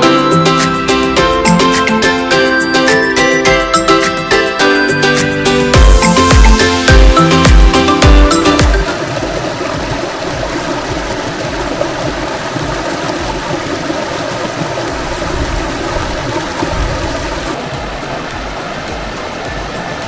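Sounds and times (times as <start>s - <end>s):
stream flowing over rocks: 5.8s - 20.0s.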